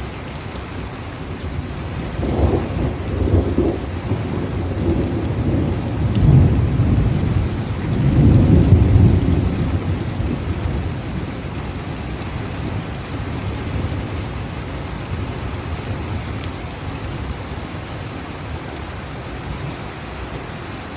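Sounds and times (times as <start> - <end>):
heavy rain falling: 0.0 - 20.9
thunder rumbling: 2.0 - 12.0.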